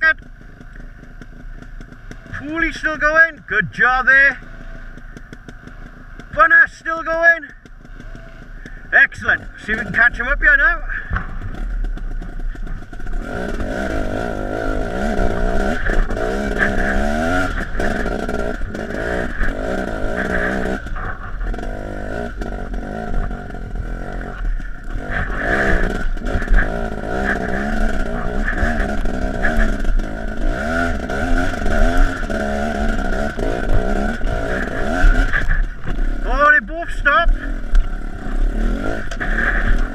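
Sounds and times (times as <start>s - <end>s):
dirt bike engine revving: 0.0s - 39.9s
sharp knocks: 11.1s - 14.0s.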